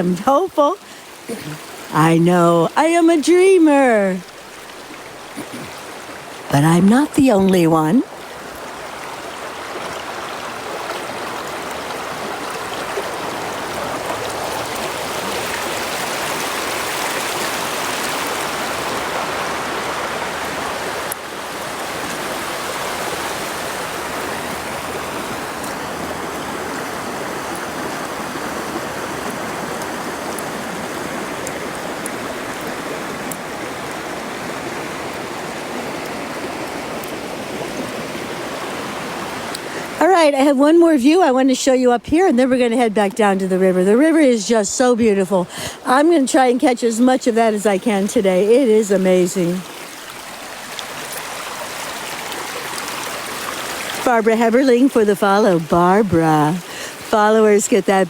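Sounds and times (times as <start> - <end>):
brook water flowing: 0.0 - 58.0.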